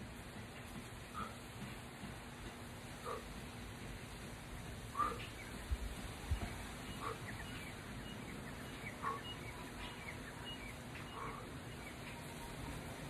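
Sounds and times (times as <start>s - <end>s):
wind-like outdoor rush: 0.0s - 13.0s
small birds chirping: 0.4s - 13.0s.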